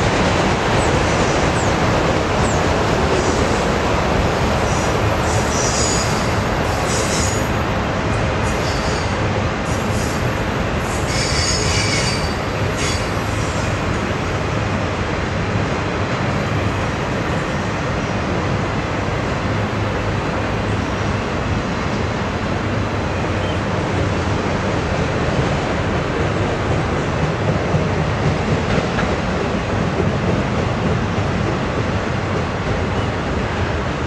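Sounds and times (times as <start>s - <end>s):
metallic wheel squeal: 11.1s - 13.1s.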